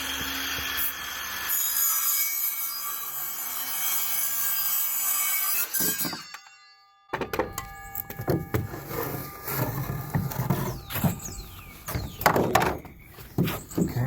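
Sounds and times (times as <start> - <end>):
lumber knocking and clattering: 7.1 - 8.9, 10.0 - 14.0.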